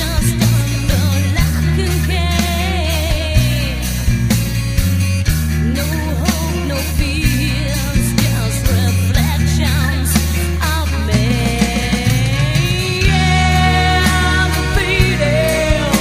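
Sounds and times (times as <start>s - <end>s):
rock music: 0.0s - 16.0s
man singing: 5.7s - 16.0s.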